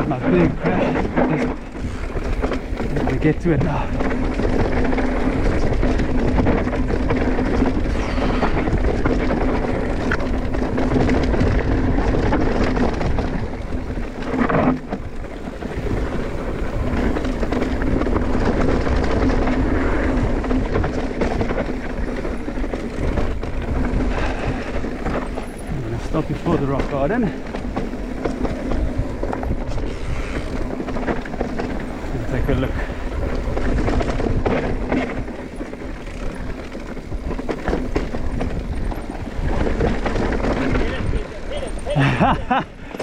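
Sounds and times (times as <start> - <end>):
bike rattling: 0.0 - 43.0
bike tyres rumbling over rock: 0.0 - 43.0.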